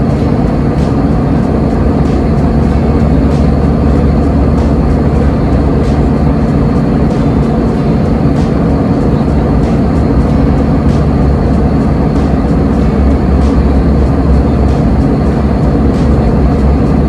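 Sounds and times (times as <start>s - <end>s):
airliner engines rumbling in cabin: 0.0s - 17.0s.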